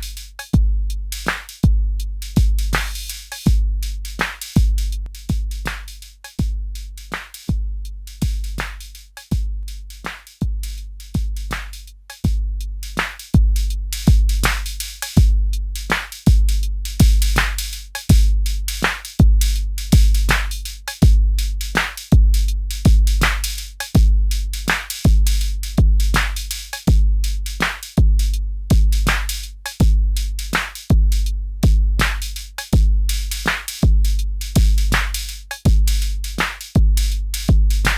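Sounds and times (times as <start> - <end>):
deep kick drum: 0.0 - 37.9.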